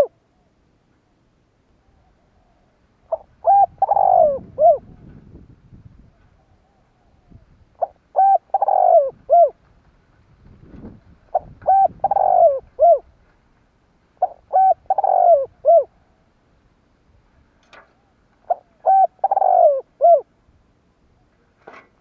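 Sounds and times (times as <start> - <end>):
dove cooing: 0.0 - 0.5, 1.8 - 5.4, 6.0 - 9.6, 10.8 - 13.2, 14.2 - 16.3, 17.8 - 20.3.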